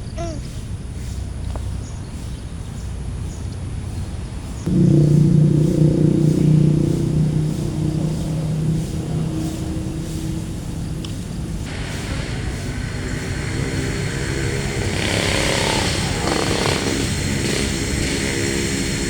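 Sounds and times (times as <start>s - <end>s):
low background rumble: 4.7s - 11.8s
vehicle engine hum: 4.7s - 19.0s.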